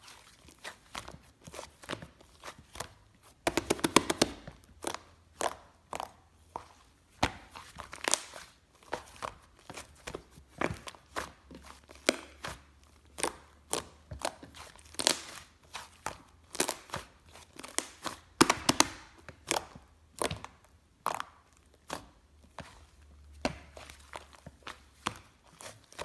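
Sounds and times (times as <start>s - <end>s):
slime clicking and popping: 3.5s - 4.5s.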